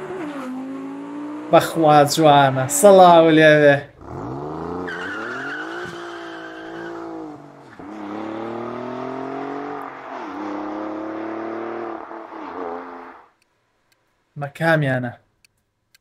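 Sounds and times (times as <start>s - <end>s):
car engine accelerating: 0.0s - 3.0s, 3.9s - 13.3s.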